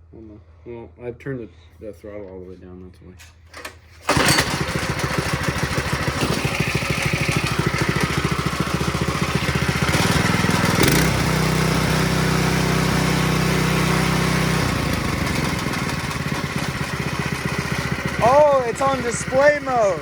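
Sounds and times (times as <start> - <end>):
small engine running: 4.0 - 20.0.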